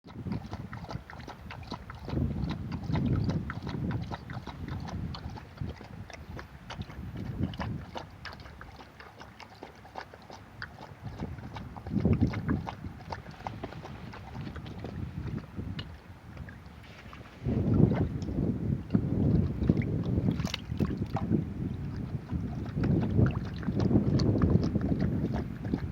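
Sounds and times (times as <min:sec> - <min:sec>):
sea waves washing on shore: 0:13.1 - 0:18.7.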